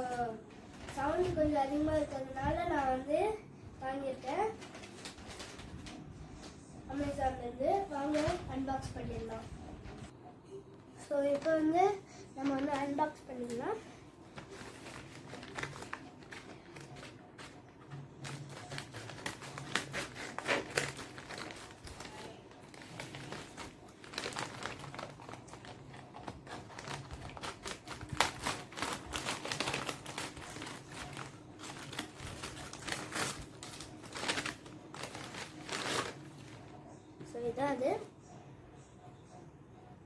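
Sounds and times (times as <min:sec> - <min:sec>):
packaging crinkling and rustling: 0:04.3 - 0:06.1, 0:12.4 - 0:36.8.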